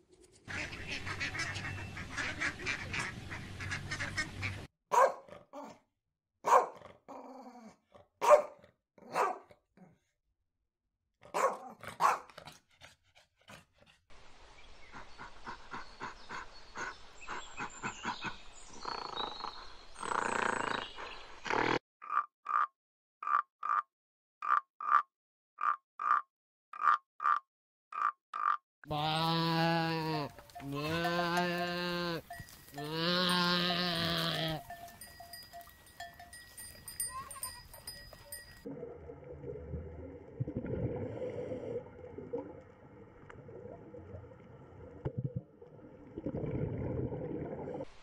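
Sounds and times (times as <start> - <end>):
dog barks: 4.9 - 5.8, 6.4 - 7.0, 8.2 - 9.6, 11.2 - 12.6.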